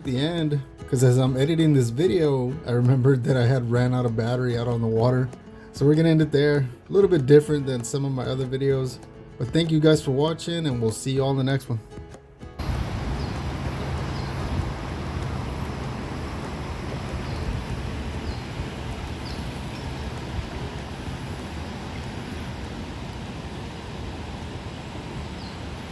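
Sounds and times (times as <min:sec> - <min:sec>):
low outdoor rumble: 0:12.6 - 0:25.9
faint bird chirps: 0:12.7 - 0:20.0.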